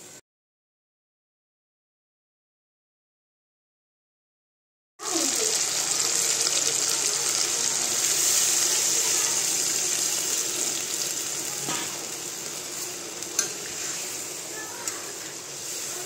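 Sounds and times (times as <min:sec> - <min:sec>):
curry sizzling in a hot pan: 0:05.0 - 0:16.0.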